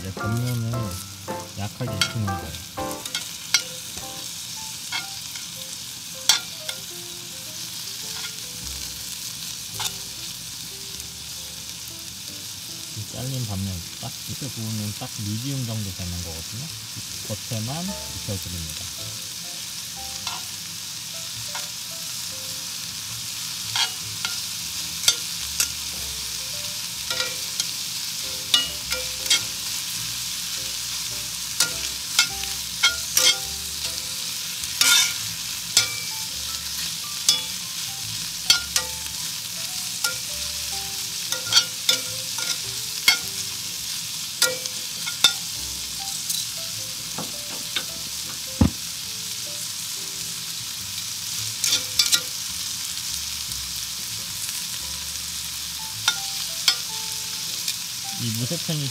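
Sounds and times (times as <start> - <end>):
steak sizzling in a skillet: 0.0 - 58.9
metal tongs clicking on pan: 3.0 - 4.2, 4.9 - 5.5, 6.3 - 6.9, 8.2 - 8.4, 9.8 - 10.0, 20.2 - 20.5, 23.8 - 25.8, 27.1 - 27.7, 28.5 - 29.7, 31.6 - 33.5, 34.8 - 35.2, 35.8 - 37.6, 38.5 - 39.0, 40.0 - 40.3, 41.2 - 43.4, 44.4 - 45.6, 51.6 - 52.4, 56.0 - 56.9.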